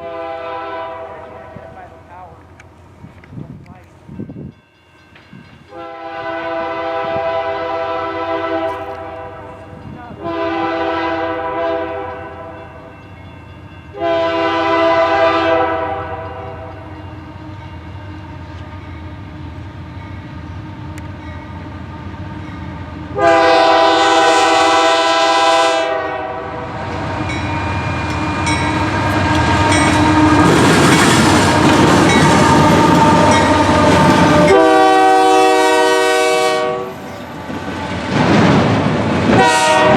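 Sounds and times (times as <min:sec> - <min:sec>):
locomotive air horn blasts: 0:00.0 - 0:02.0, 0:05.7 - 0:12.6, 0:13.9 - 0:16.9, 0:23.1 - 0:26.7, 0:27.7 - 0:30.6, 0:32.2 - 0:37.0, 0:39.3 - 0:39.9
train passing rumble: 0:00.0 - 0:39.9
train wheel clatter: 0:27.2 - 0:34.6.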